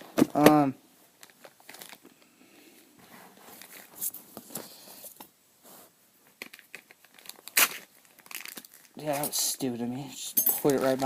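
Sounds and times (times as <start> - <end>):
packaging rustling: 1.1 - 2.2, 3.3 - 4.7, 6.3 - 9.3.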